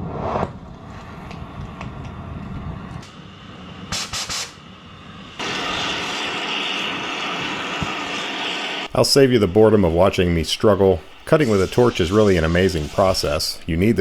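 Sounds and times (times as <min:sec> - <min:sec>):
cutting torch flame rumbling: 0:00.0 - 0:10.2
loud steady gas hiss: 0:02.6 - 0:14.0
short sharp gas hisses: 0:03.9 - 0:04.6, 0:05.4 - 0:08.9.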